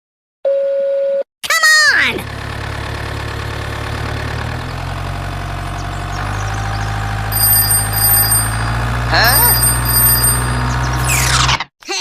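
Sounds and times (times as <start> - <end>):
engine-like idling drone: 2.2 - 11.5
thin steady whine: 7.3 - 10.8.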